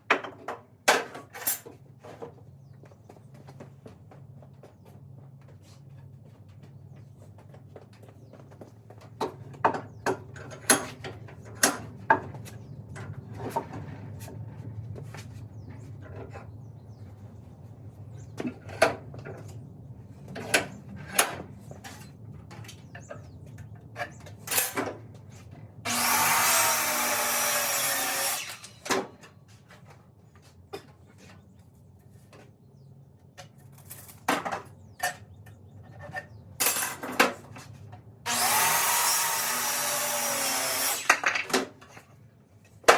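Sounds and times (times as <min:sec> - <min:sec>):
power drill running: 0:25.9 - 0:28.9, 0:38.3 - 0:41.2.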